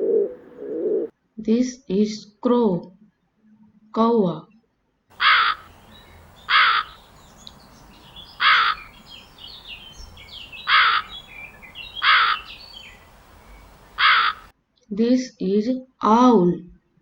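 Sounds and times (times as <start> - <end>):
crow cawing: 5.1 - 14.5
small birds chirping: 5.1 - 14.5.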